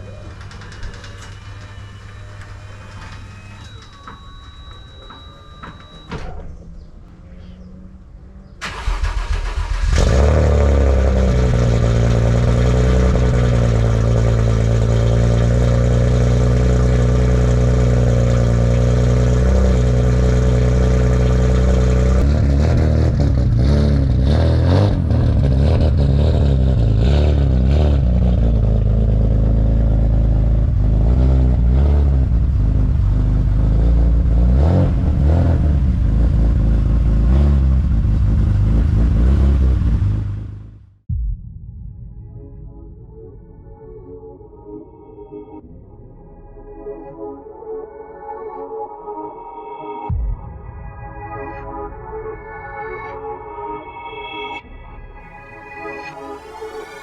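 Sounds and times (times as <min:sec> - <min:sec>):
car engine starting and revving: 0:07.5 - 0:41.0.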